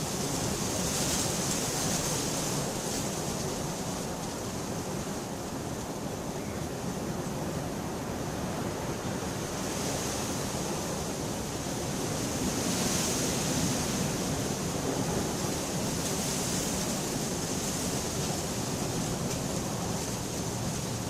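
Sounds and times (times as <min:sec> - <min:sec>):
heavy rain: 0:13.2 - 0:21.0.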